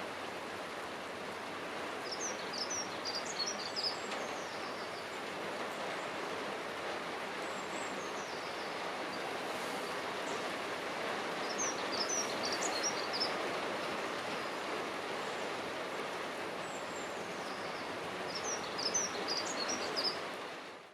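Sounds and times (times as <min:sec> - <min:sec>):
background rush of noise: 0:00.0 - 0:20.9
bird warbling song: 0:11.4 - 0:13.4.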